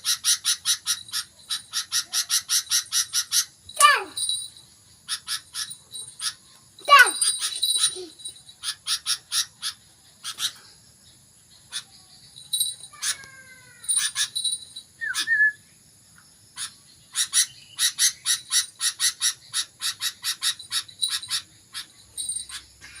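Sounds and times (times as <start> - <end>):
bird chipping calls: 0.0 - 10.8, 11.5 - 15.6, 16.5 - 23.0
sliding whistled bird notes: 15.0 - 15.7.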